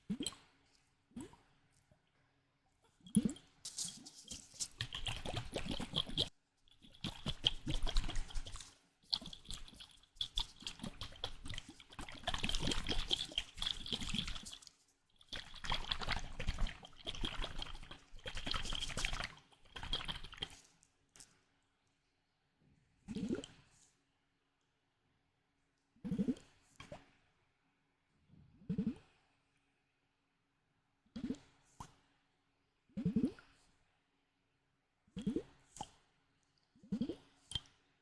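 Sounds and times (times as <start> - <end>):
slime squelching by hand: 3.2 - 20.7.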